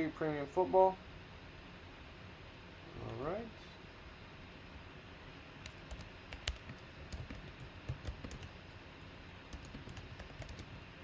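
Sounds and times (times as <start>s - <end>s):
typing on computer keyboard: 5.6s - 8.8s, 9.5s - 10.9s.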